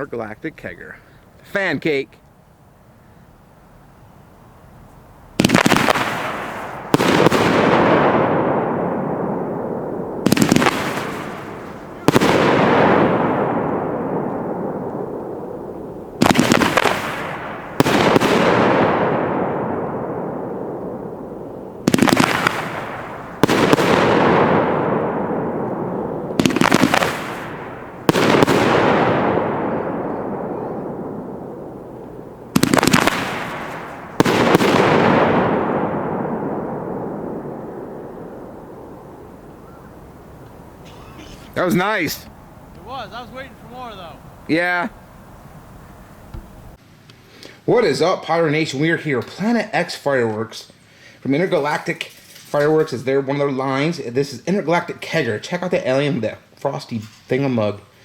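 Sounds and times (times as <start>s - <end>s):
firework bang and crackling fizz: 5.4s - 39.2s
firework launch thump: 46.3s - 46.7s.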